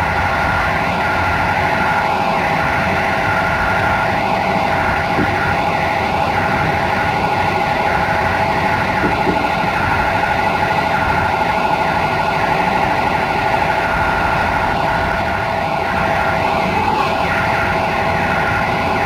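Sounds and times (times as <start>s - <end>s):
constant whine: 0.0s - 19.0s
train wheels rumbling on rail: 0.0s - 19.0s.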